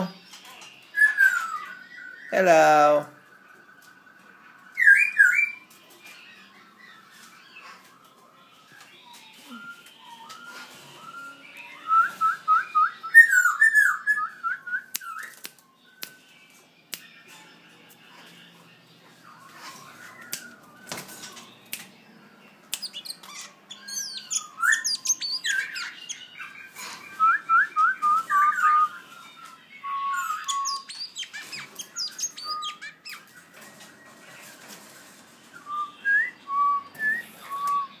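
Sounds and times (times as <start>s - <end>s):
bird calling with whistled notes: 8.7s - 16.3s, 22.8s - 33.4s, 35.5s - 38.0s.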